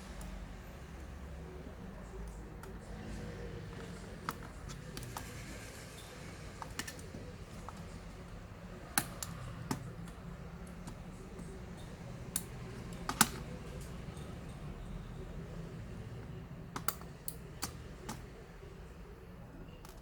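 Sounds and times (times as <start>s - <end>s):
clicks of laptop parts: 2.2s - 5.7s, 6.6s - 14.0s, 16.7s - 18.3s, 19.8s - 20.0s.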